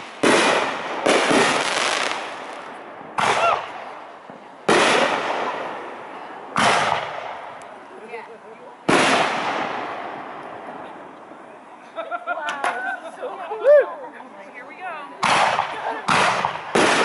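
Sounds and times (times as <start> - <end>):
firework shells bursting: 0.0 - 3.9
rolling echo: 0.0 - 7.9.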